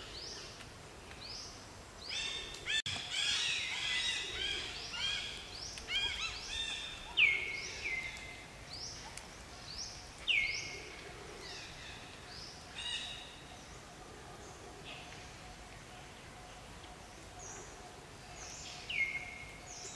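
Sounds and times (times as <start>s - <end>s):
birds calling: 0.0s - 13.8s.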